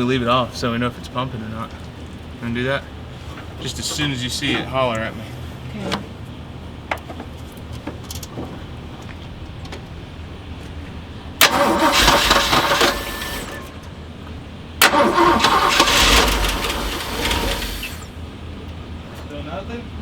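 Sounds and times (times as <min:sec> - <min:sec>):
starter cranking engine: 0:11.4 - 0:14.2, 0:14.8 - 0:18.2.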